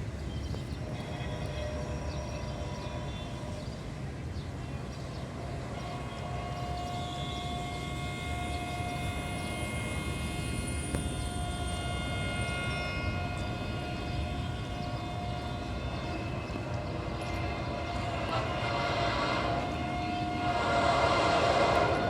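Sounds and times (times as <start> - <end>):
locomotive engine rumble: 0.0 - 22.0
high whining tones: 5.2 - 22.0.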